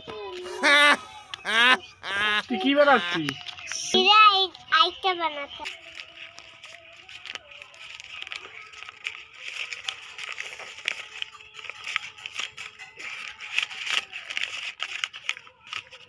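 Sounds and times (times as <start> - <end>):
paper crackling and crinkling: 0.3 - 16.0
small sharp paper clicks: 5.6 - 16.0.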